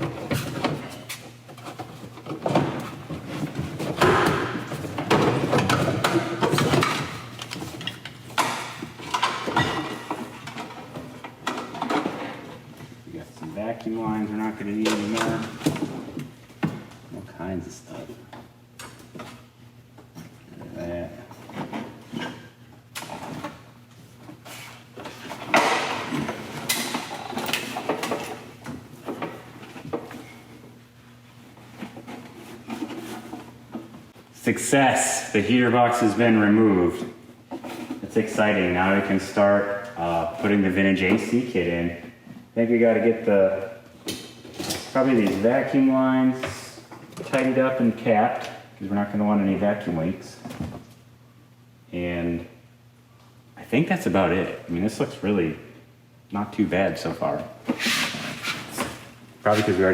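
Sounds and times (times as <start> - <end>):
knocks and scrapes of car parts: 0.0 - 12.9.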